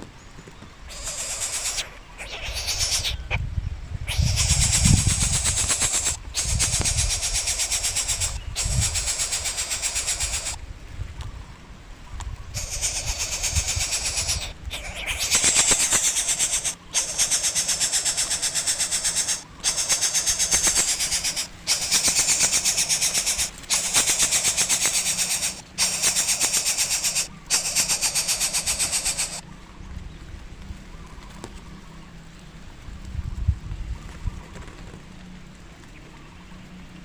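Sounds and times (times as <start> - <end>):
chick rasping begging call: 0.9 - 3.4, 4.1 - 10.6, 12.5 - 29.4.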